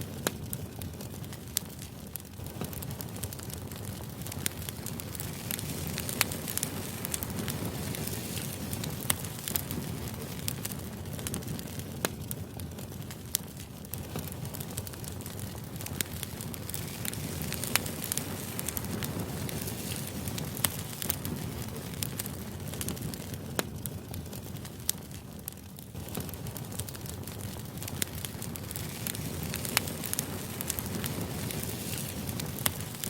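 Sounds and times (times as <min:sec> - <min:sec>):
crackling fire: 0:00.0 - 0:33.0
fire pops and snaps: 0:00.0 - 0:33.0.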